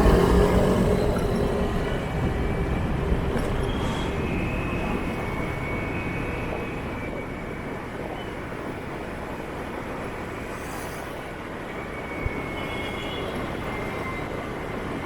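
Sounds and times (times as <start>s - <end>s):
motorbike engine and road rumble: 0.0s - 6.6s.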